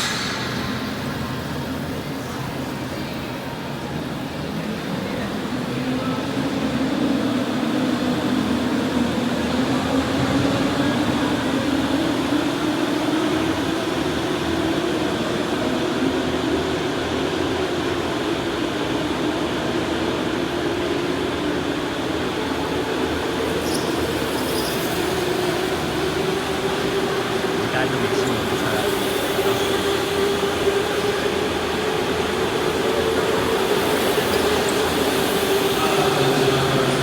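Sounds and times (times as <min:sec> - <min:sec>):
noisy running sound: 0:00.0 - 0:37.0
electric go-kart motor whining: 0:21.2 - 0:37.0.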